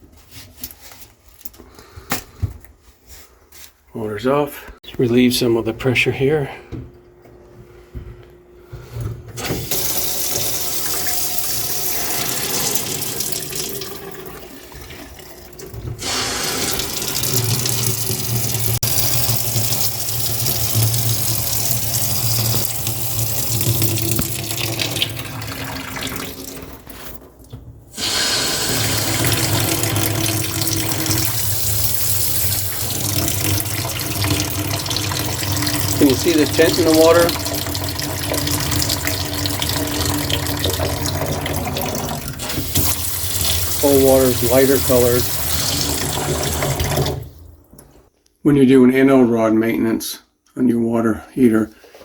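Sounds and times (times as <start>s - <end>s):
water running from valve: 9.4s - 27.2s, 28.0s - 47.6s.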